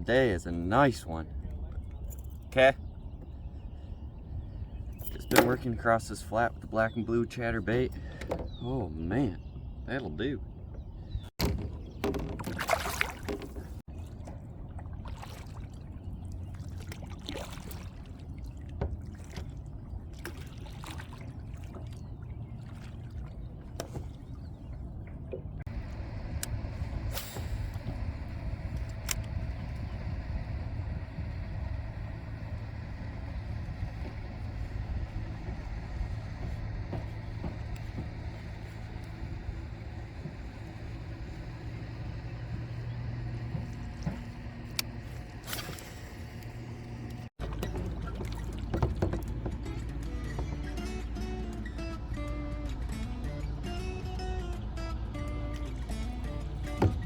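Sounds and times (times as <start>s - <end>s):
knocks and clicks of gear: 4.9s - 6.0s, 7.6s - 8.8s, 10.6s - 14.4s, 23.6s - 57.0s
steady low drone: 13.8s - 57.0s.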